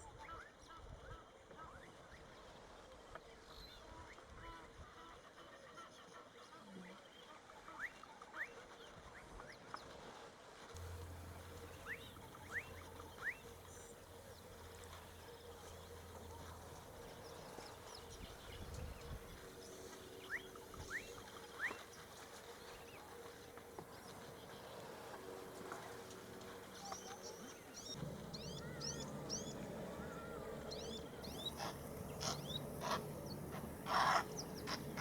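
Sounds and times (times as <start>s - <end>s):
bird whistling calls: 10.8s - 35.0s
low steady hum: 10.8s - 35.0s.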